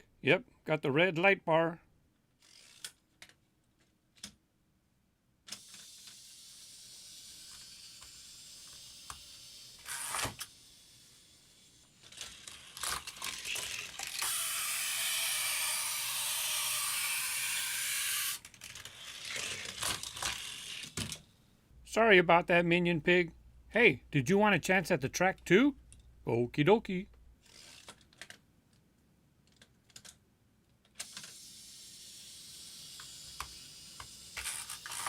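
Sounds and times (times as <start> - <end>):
toy car clicking and rattling: 2.4 - 3.4, 5.5 - 21.3, 27.4 - 28.4, 30.8 - 35.0
toy car rolling on plastic track: 2.4 - 3.4, 5.5 - 21.3, 27.4 - 28.4, 30.8 - 35.0.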